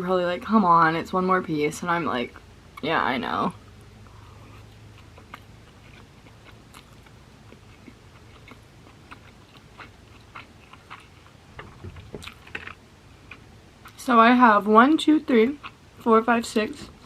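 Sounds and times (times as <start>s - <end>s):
person chewing food: 3.6s - 14.0s, 15.6s - 15.8s.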